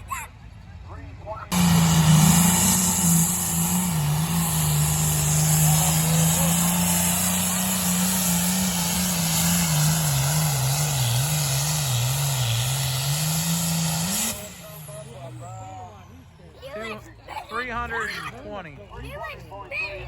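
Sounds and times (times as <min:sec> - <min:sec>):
vehicle engine revving under load: 0:01.5 - 0:15.9.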